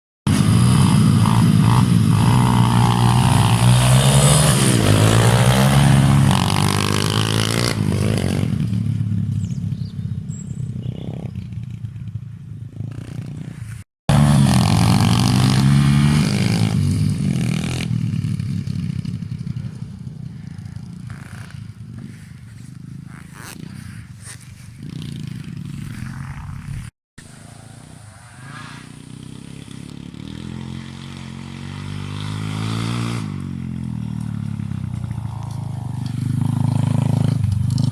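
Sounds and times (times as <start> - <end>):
dirt bike engine revving: 0.3 - 11.8, 12.7 - 37.9.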